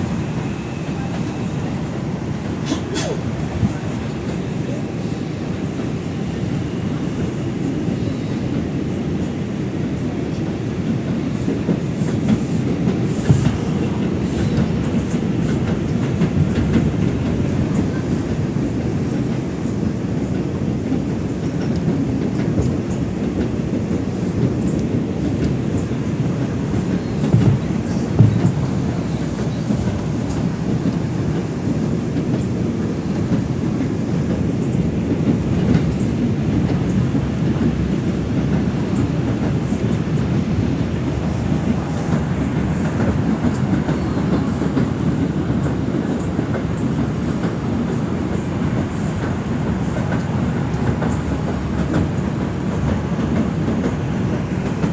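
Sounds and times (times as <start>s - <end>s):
subway wheels rumbling on rails: 0.0s - 54.9s
clacks over rail joints: 20.3s - 54.9s.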